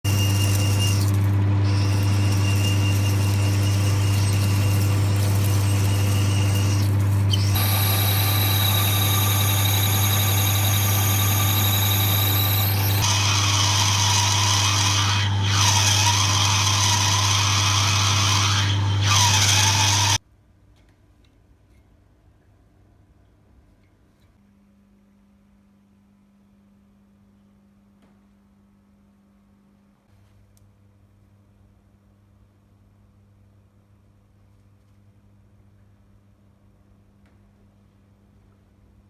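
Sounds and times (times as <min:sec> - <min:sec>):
welding arc buzzing and crackling: 0:00.1 - 0:13.7.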